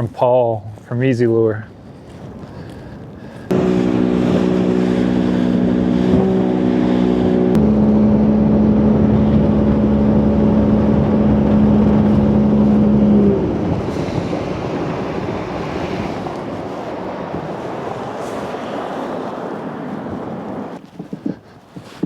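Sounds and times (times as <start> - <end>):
rush of wind and water: 0.0 - 22.0
boat motor droning: 3.5 - 20.8.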